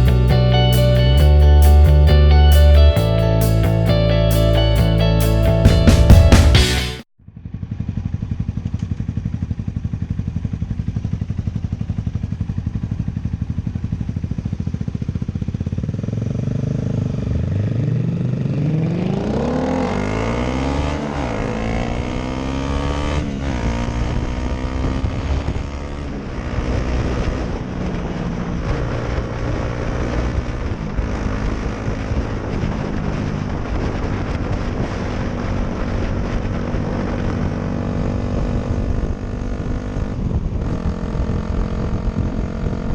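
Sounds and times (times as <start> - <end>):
motorcycle engine accelerating: 0.0 - 42.9.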